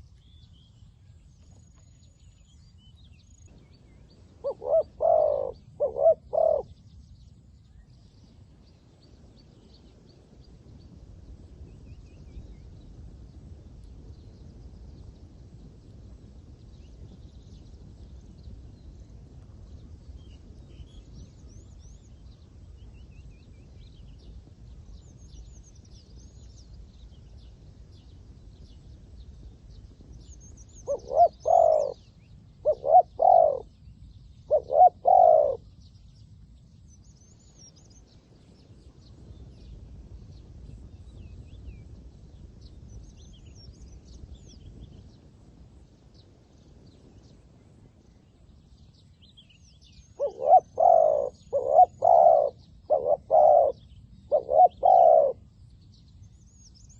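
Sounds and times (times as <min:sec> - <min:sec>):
dove cooing: 0:04.4 - 0:06.7, 0:30.8 - 0:32.0, 0:32.6 - 0:33.7, 0:34.5 - 0:35.6, 0:50.2 - 0:55.4.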